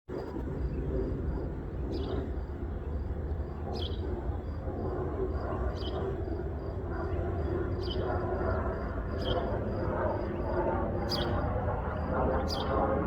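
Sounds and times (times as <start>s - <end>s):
jet engines rumbling: 0.1s - 13.0s.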